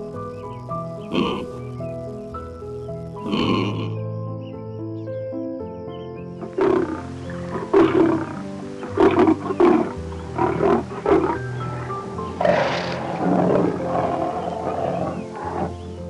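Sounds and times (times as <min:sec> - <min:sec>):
background music with keyboard notes: 0:00.0 - 0:16.0
big cat roaring: 0:01.1 - 0:01.5, 0:03.2 - 0:03.9, 0:06.5 - 0:15.8.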